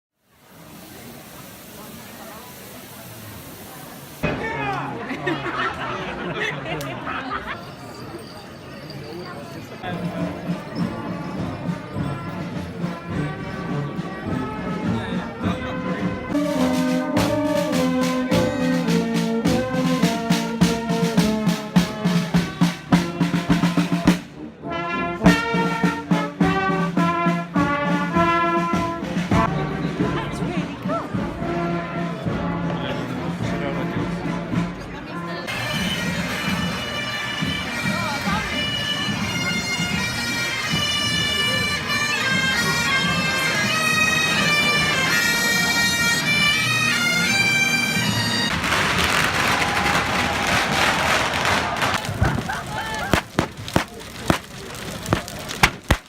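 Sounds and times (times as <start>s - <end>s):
steady drumbeat: 9.8s - 24.3s, 25.3s - 29.5s, 48.5s - 56.0s
marching band brass: 9.8s - 56.0s
bagpipes playing a tune: 35.5s - 48.5s
loud rushing noise: 48.5s - 56.0s.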